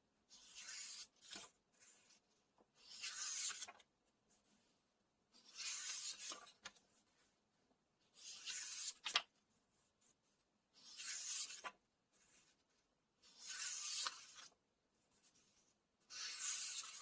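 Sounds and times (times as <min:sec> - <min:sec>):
book pages turning: 0:00.4 - 0:02.2, 0:02.8 - 0:03.9, 0:05.4 - 0:06.9, 0:08.2 - 0:09.3, 0:10.8 - 0:12.5, 0:13.4 - 0:14.5, 0:16.1 - 0:17.0.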